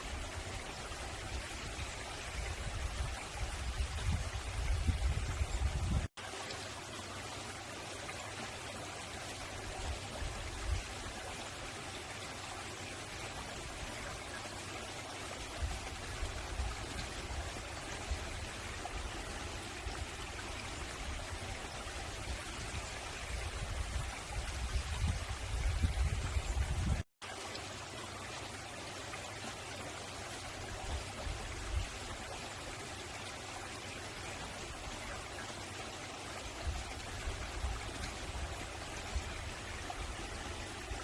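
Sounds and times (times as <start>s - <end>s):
stream rushing over rocks: 0.0s - 41.0s.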